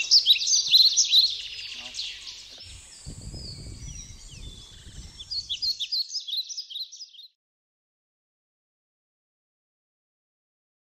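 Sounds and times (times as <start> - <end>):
birds chirping and singing: 0.0 - 7.4.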